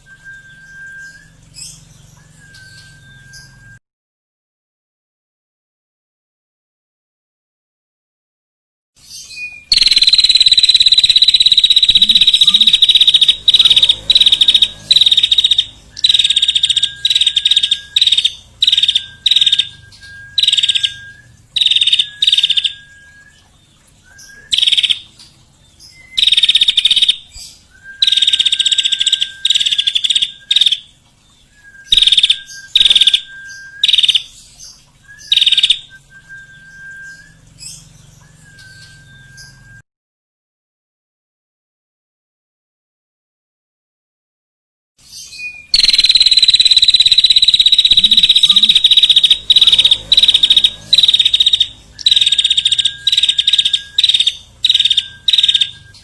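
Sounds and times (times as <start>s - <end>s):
songbird trilling: 9.3s - 23.1s, 31.8s - 34.3s, 35.1s - 35.9s, 45.3s - 56.0s.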